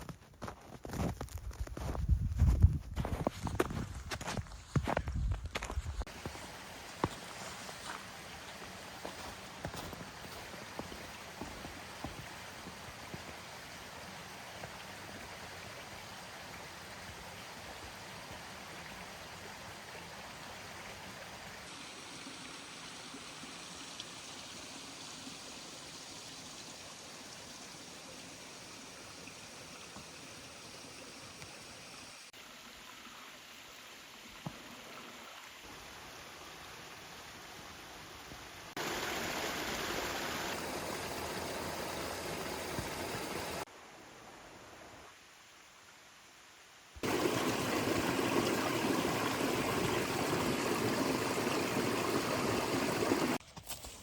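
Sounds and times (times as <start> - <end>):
mountain stream rushing: 6.0 - 32.4, 34.4 - 45.4, 47.0 - 53.4.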